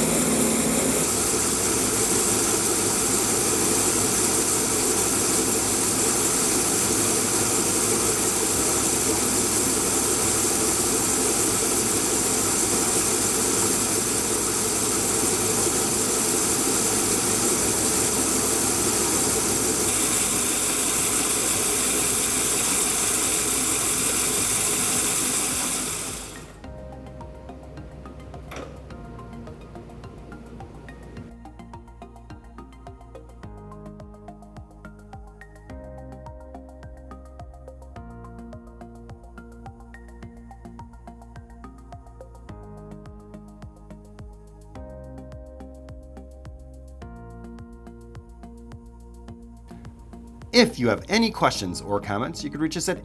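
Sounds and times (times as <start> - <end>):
bandsaw running: 0.0 - 26.6.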